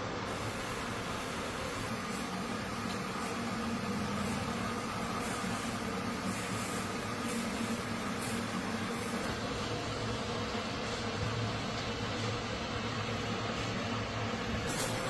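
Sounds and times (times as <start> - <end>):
factory machinery humming: 0.0 - 15.0.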